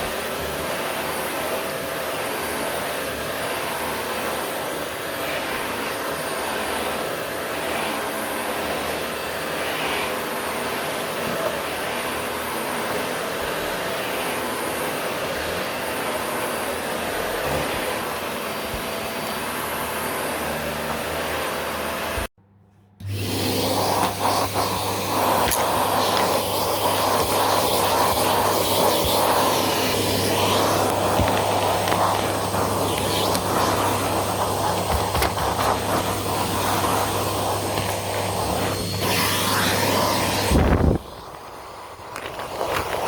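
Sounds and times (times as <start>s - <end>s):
vacuum cleaner running: 0.0s - 22.4s, 23.0s - 43.0s.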